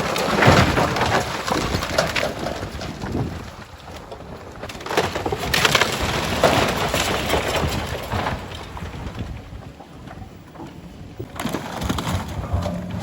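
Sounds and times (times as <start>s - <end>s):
rubble crashing and crumbling: 0.0s - 13.0s.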